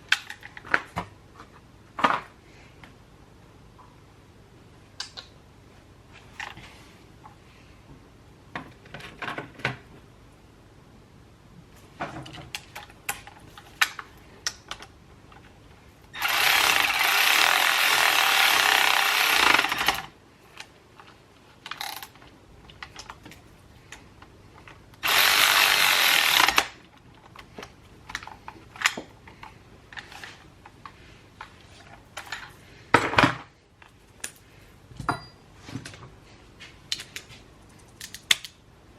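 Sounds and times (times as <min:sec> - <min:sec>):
small metal parts clicking: 0:21.6 - 0:24.0, 0:36.9 - 0:38.6.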